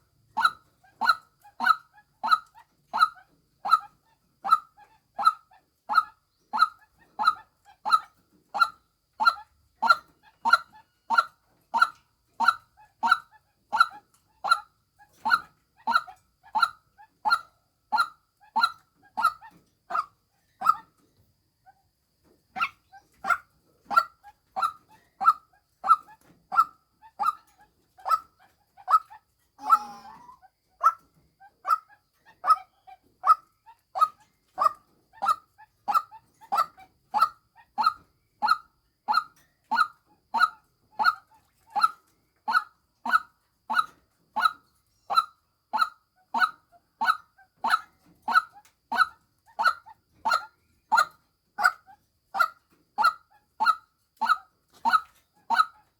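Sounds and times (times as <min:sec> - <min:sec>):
waterhen repeated kwak call: 0:28.9 - 0:31.0
longer rough bird call: 0:29.6 - 0:30.5.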